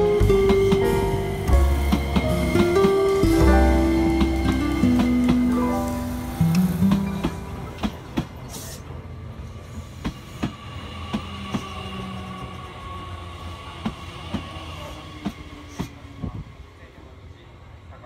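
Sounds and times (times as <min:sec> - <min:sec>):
train wheels clicking over rail joints: 0:00.0 - 0:09.0, 0:09.8 - 0:12.5
train rumble: 0:00.0 - 0:18.0.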